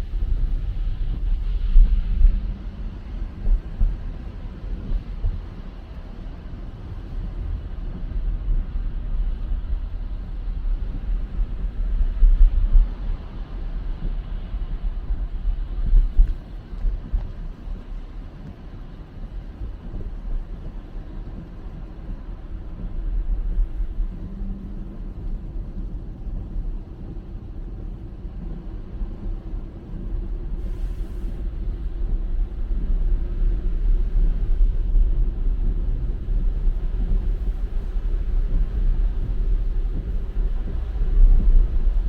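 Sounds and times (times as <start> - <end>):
tire and road rumble: 0.0 - 42.0
brief hiss: 30.6 - 31.5.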